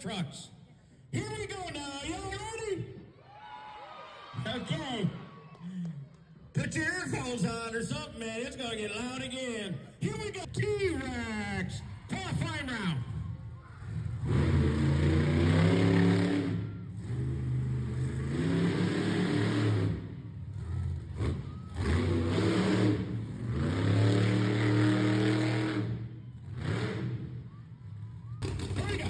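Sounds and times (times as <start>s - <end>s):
monster truck engine revving: 12.4s - 29.0s.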